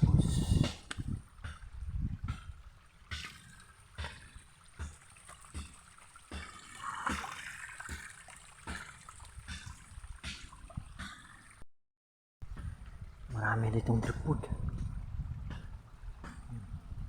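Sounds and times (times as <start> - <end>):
water trickling down waterfall: 0.1 - 11.6.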